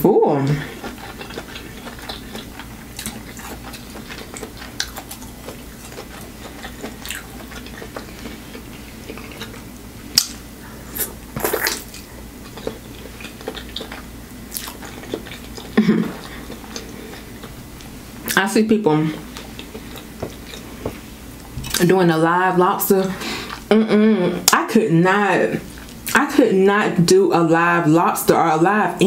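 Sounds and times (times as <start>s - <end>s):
chewing and mouth smacks: 0.6s - 10.4s, 11.0s - 18.4s, 19.3s - 21.9s.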